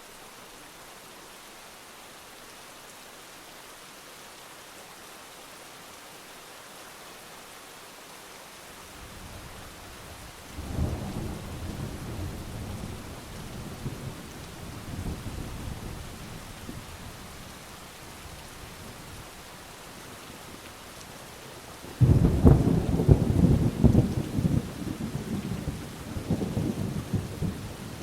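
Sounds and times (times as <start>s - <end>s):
heavy rain: 0.0s - 28.0s
thunder rolling: 22.0s - 28.0s.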